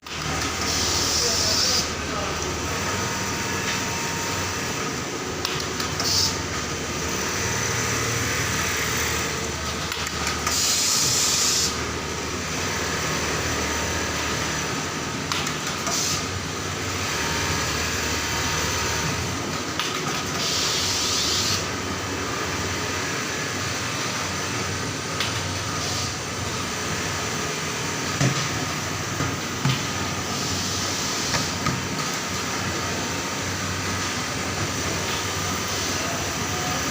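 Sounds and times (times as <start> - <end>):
sewing machine running: 0.0 - 19.4.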